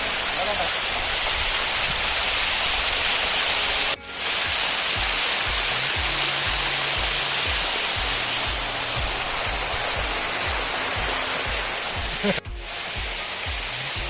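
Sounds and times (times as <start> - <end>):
waterfall roaring: 0.0 - 14.0
music with deep bass line: 4.0 - 14.0.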